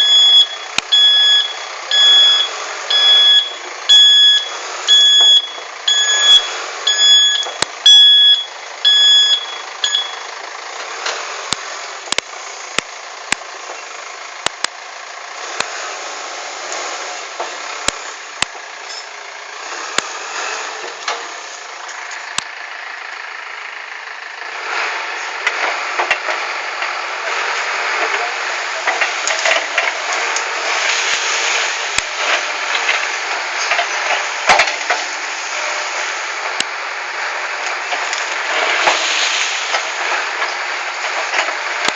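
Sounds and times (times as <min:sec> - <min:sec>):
reversing alarm beeping: 0:00.0 - 0:10.3
backhoe loader running: 0:00.0 - 0:41.9.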